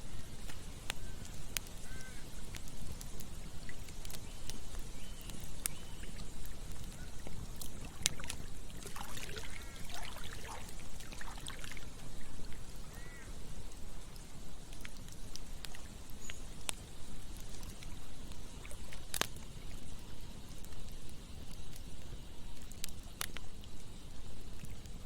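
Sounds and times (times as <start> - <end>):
campfire crackling: 0.0 - 25.0
flowing river: 6.0 - 12.9.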